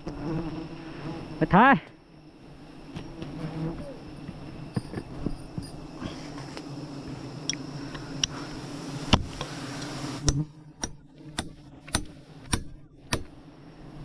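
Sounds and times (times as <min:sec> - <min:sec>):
low steady hum: 0:00.0 - 0:14.0
sharp knocks: 0:10.2 - 0:13.4.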